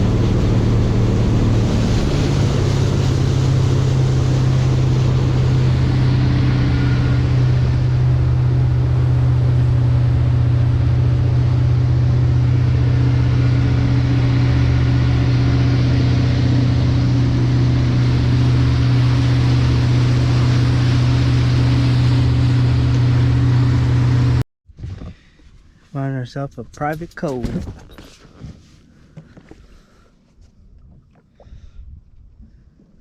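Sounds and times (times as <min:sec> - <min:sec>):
boat engine running: 0:00.0 - 0:24.4
water noise: 0:00.0 - 0:24.4.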